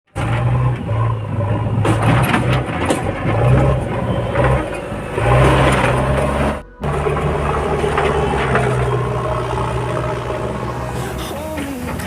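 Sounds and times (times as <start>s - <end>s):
diesel engine running: 0.1s - 12.0s.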